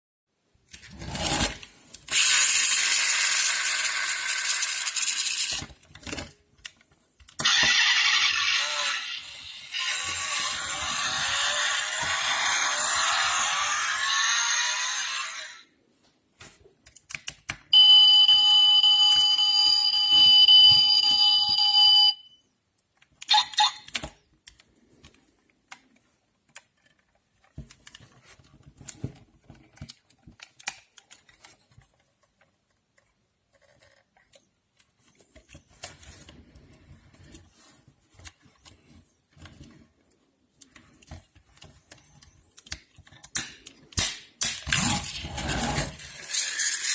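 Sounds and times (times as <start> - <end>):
electronic alarm tone: 17.8 - 22.4.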